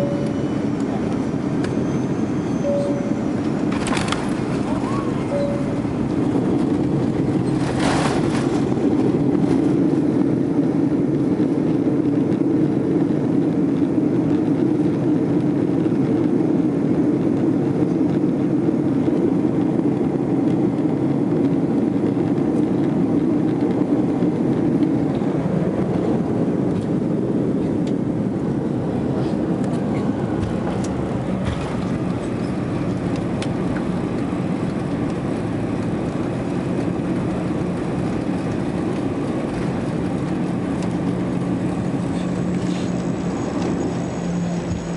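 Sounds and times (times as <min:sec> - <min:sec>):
aircraft engines droning: 0:00.0 - 0:44.9
rushing air: 0:21.6 - 0:44.9.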